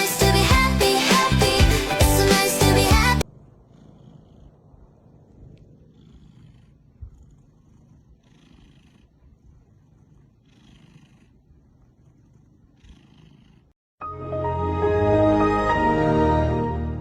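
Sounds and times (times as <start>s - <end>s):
cat purring: 0.0s - 13.8s.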